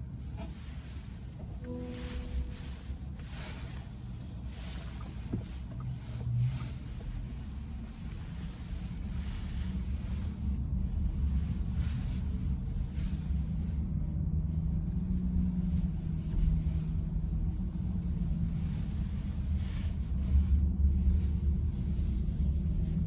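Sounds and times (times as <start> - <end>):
car road and engine rumble: 0.0 - 23.0
faint steady hum: 0.0 - 23.0.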